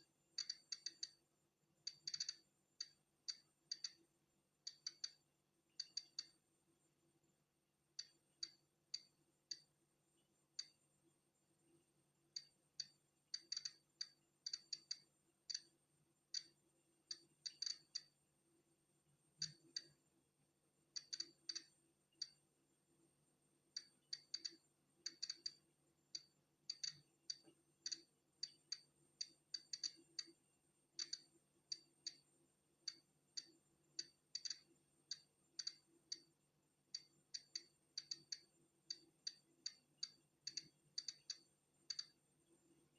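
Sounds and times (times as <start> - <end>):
geiger counter clicking: 0.4 - 1.2, 1.8 - 4.0, 4.7 - 6.4, 8.0 - 9.7, 10.6 - 10.8, 12.3 - 18.2, 19.4 - 20.0, 20.9 - 22.4, 23.7 - 30.4, 31.0 - 32.2, 32.8 - 42.2.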